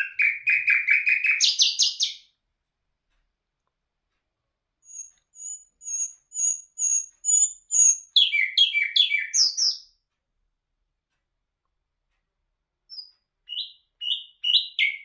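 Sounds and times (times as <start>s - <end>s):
songbird singing: 0.0s - 2.3s, 4.9s - 10.0s, 12.9s - 15.0s.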